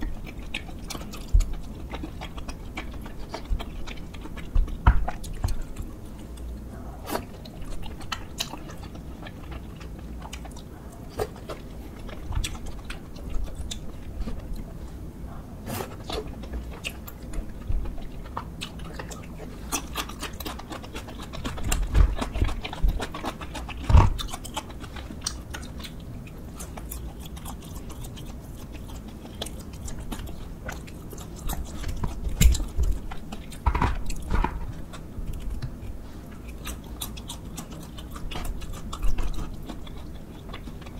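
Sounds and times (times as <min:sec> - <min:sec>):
person chewing and biting food: 0:00.0 - 0:40.9.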